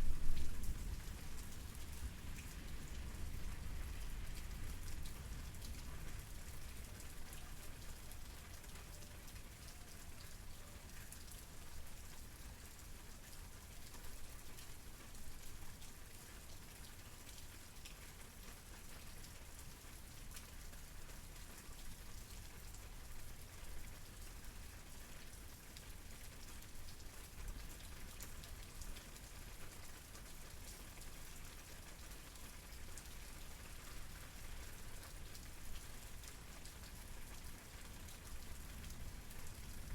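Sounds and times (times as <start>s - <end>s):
soft low rumble: 0.0s - 1.1s
rain pattering on surface: 0.0s - 39.9s.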